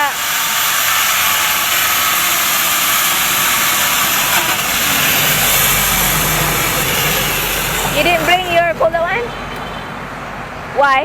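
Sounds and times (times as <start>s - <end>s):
angle grinder hissing whir: 0.0s - 9.6s
low hum: 0.8s - 9.6s.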